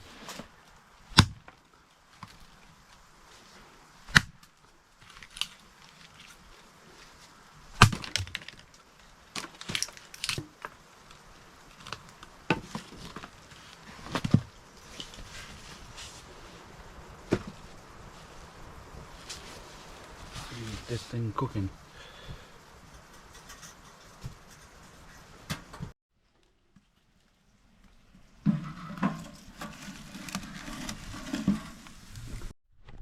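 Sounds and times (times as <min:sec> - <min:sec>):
sharp knocks and cracks: 0:01.1 - 0:01.6, 0:04.1 - 0:05.6, 0:07.8 - 0:10.8.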